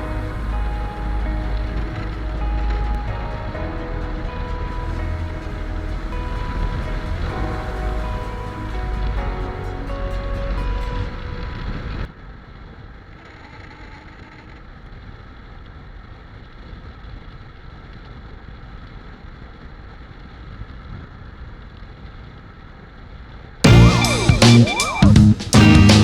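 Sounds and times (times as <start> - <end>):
background music: 0.0 - 12.1, 23.7 - 26.0.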